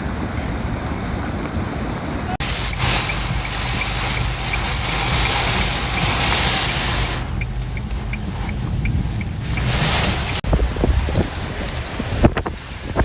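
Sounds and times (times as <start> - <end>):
heavy rain: 0.0 - 13.0
vehicle noise: 0.0 - 13.0
faint regular ticking: 2.6 - 9.8.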